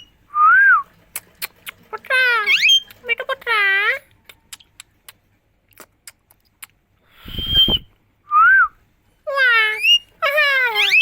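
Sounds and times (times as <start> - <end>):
parrot whistling: 9.3 - 11.0.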